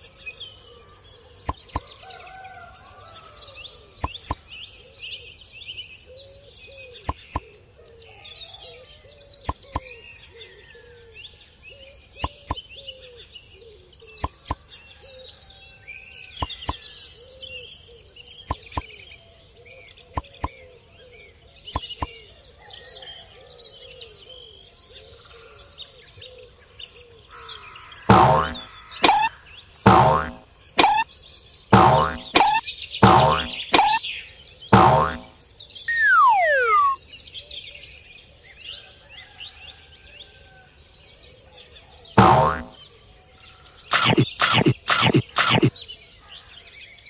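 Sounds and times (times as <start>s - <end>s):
small birds chirping: 1.1s - 2.0s, 3.7s - 4.8s, 7.0s - 7.6s, 9.3s - 10.0s, 12.1s - 13.0s, 14.1s - 14.7s, 16.2s - 17.2s, 18.3s - 19.1s, 19.9s - 20.7s, 21.6s - 22.2s, 28.1s - 34.0s, 34.8s - 35.3s, 35.9s - 37.0s, 42.2s - 42.8s, 43.9s - 45.7s
loud twanging sound: 28.1s - 29.3s, 29.9s - 31.0s, 31.8s - 34.0s, 34.8s - 35.3s, 42.2s - 42.7s, 43.9s - 45.7s
low bird call: 34.8s - 35.3s, 35.9s - 37.0s
sharp clicks: 43.9s - 45.7s.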